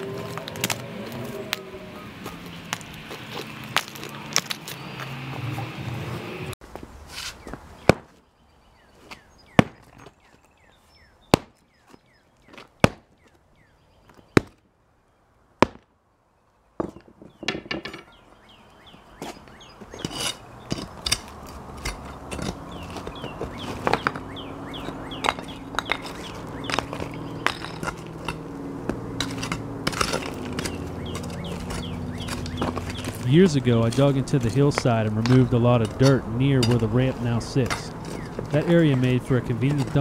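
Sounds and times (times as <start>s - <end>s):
scraping and crunching concrete: 0.0s - 5.2s, 6.7s - 8.2s, 18.9s - 40.0s
sledgehammer striking concrete: 9.6s - 9.9s, 11.3s - 11.6s.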